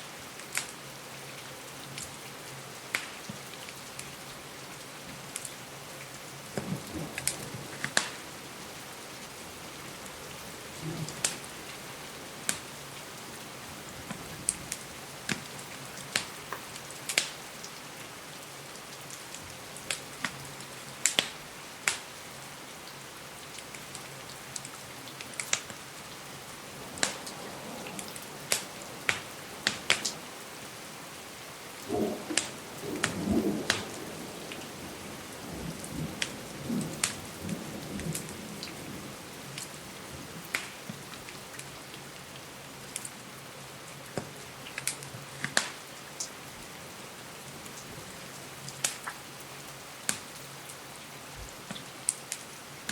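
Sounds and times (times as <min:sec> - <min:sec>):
rain on a window pane: 0:00.0 - 0:52.9
wood fire crackling: 0:02.9 - 0:04.2, 0:04.8 - 0:20.4, 0:21.0 - 0:22.2, 0:23.4 - 0:41.8, 0:44.1 - 0:46.4, 0:47.6 - 0:49.2, 0:50.0 - 0:50.4.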